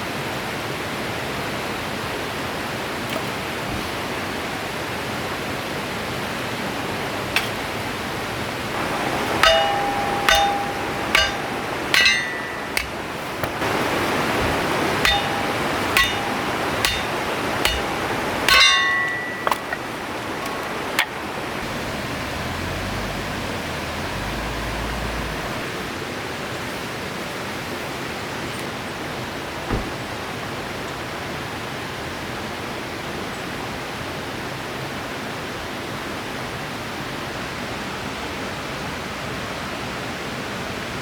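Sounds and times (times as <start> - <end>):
river rushing: 0.0 - 29.5
metal-on-metal strikes: 8.8 - 21.2.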